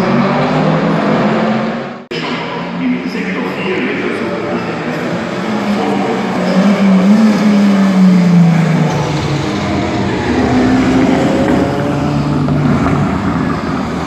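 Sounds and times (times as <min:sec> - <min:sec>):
racing car engines: 0:00.0 - 0:14.0.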